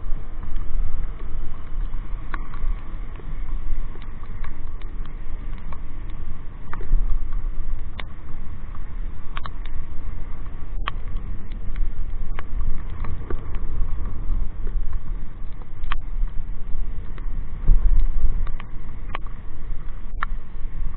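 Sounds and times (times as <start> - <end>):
raindrops ticking on microphone: 0.0 - 20.9
wind rumble on microphone: 0.0 - 20.9.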